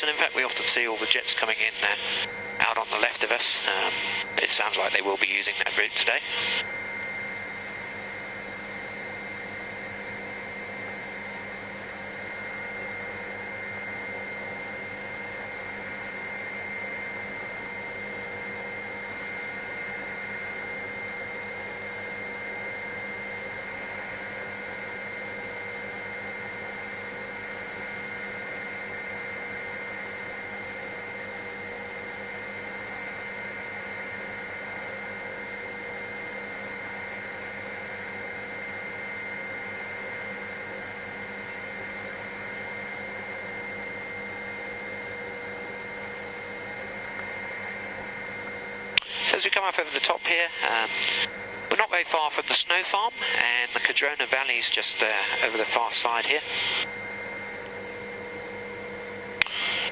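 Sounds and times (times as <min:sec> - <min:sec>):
high whine: 0:00.0 - 0:25.9, 0:40.5 - 0:59.9
helicopter engine and rotor drone: 0:00.0 - 0:59.9.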